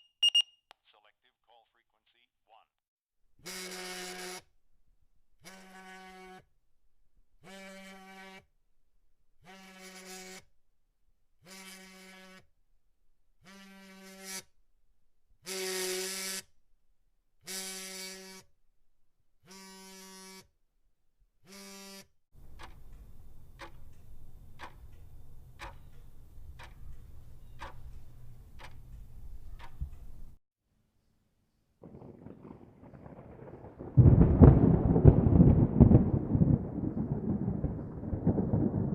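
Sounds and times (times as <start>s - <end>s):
buzzer tone: 0.0s - 0.4s
sharp ticks: 22.4s - 30.3s
low rumbling noise: 31.8s - 38.9s.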